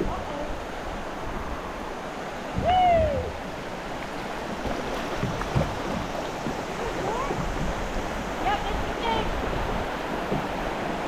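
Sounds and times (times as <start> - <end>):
river water running: 0.0 - 11.0.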